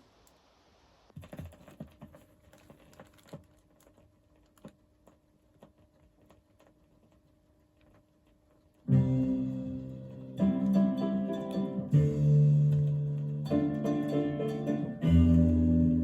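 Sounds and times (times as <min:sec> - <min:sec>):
vinyl record crackle and clicks: 0:00.0 - 0:16.0.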